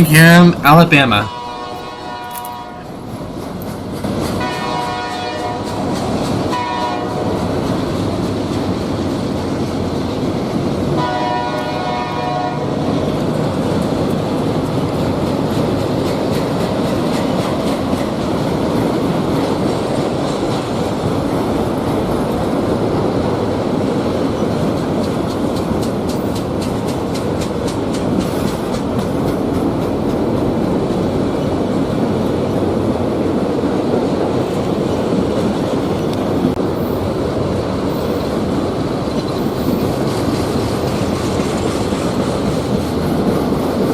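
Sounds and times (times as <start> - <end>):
freight train wheels rumbling: 0.0 - 43.9
rhythmic clickety-clack: 3.1 - 9.8, 13.7 - 22.1, 24.6 - 31.2, 39.1 - 43.9.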